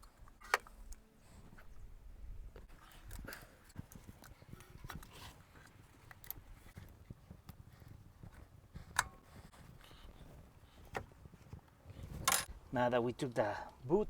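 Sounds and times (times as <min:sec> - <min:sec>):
hand work handling noises: 0:02.4 - 0:12.7.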